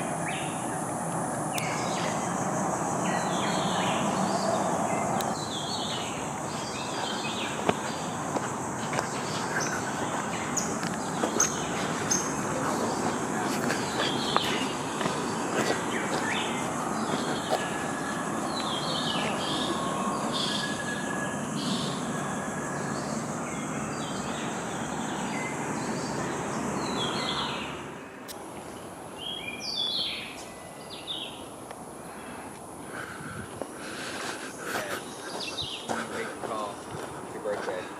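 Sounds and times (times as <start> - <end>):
broad rushing noise: 0.0 - 29.3
birds chirping: 0.0 - 37.9
insect drone: 0.0 - 37.9.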